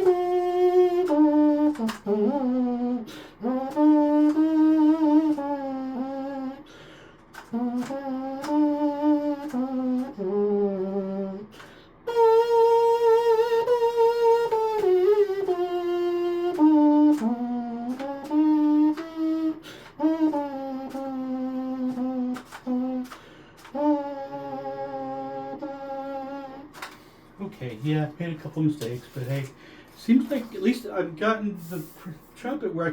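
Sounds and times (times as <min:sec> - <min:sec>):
trumpet playing simple melody: 0:00.0 - 0:27.2
air leaking from trumpet: 0:28.8 - 0:30.8, 0:31.5 - 0:32.5.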